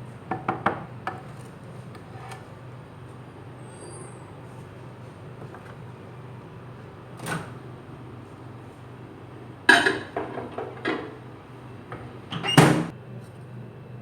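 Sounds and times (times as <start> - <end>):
microwave oven humming: 0.0 - 14.0
bowl clattering: 9.7 - 11.1.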